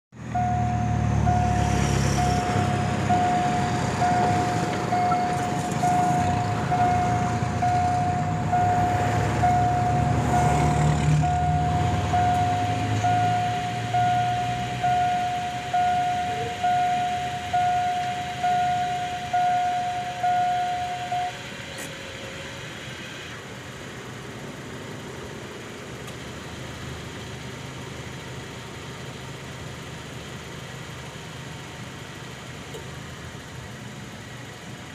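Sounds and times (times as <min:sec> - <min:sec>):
diesel locomotive rumble: 0:00.1 - 0:34.9
level crossing bell ringing: 0:00.3 - 0:21.4.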